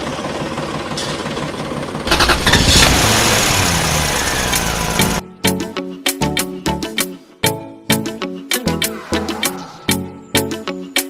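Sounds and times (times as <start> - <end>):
small engine running: 0.0 - 5.2
music: 5.0 - 11.0.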